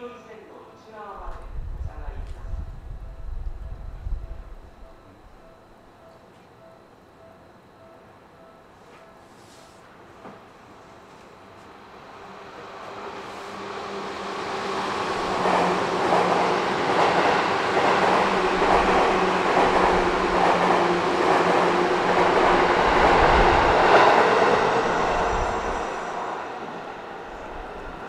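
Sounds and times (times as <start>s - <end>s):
train rumble and wheel noise: 0.1s - 28.0s.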